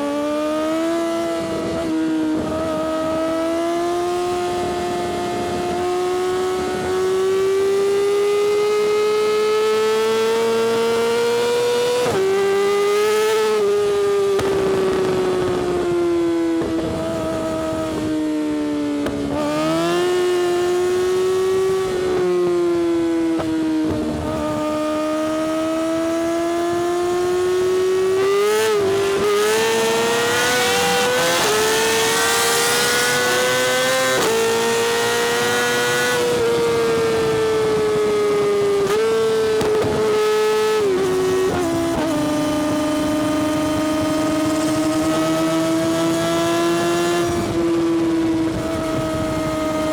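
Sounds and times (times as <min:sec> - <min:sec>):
motorcycle engine at high revs: 0:00.0 - 0:49.9.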